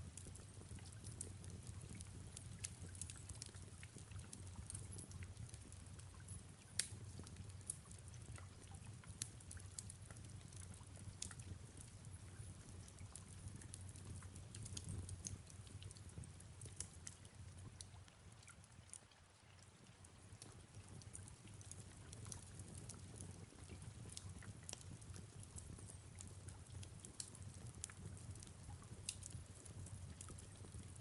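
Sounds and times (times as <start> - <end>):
fireplace crackling: 0.0 - 31.0
soft rain: 0.0 - 31.0.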